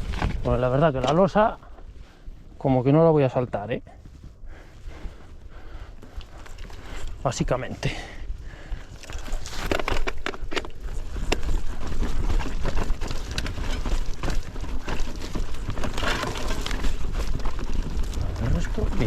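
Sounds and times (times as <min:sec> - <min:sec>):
bike tyres crunching on trail: 0:00.0 - 0:19.0
wind rumble on microphone: 0:00.0 - 0:19.0
bike rattling clicks and knocks: 0:07.8 - 0:19.0.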